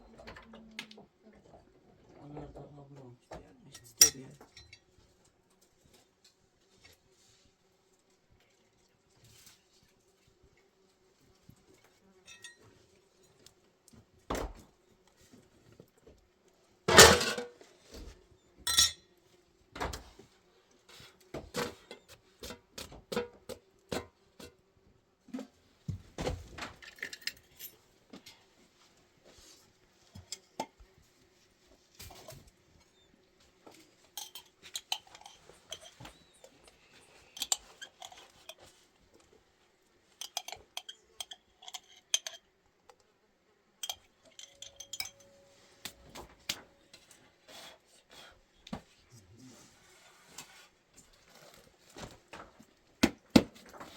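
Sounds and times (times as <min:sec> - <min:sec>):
dishes and utensils clinking: 0:03.8 - 0:04.8, 0:12.3 - 0:12.7, 0:16.9 - 0:17.6, 0:18.7 - 0:19.1, 0:34.1 - 0:36.2, 0:37.2 - 0:38.7, 0:40.1 - 0:42.5, 0:43.8 - 0:45.6.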